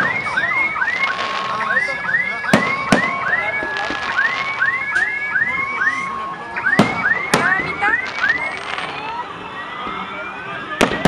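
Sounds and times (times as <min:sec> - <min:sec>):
fireworks whistles: 0:00.0 - 0:05.1, 0:06.8 - 0:09.2
fireworks bangs: 0:00.0 - 0:11.0.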